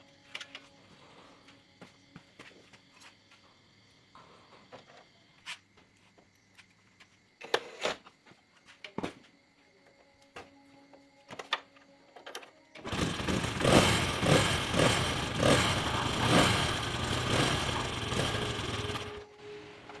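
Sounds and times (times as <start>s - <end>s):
motorcycle engine revving: 12.8s - 19.2s.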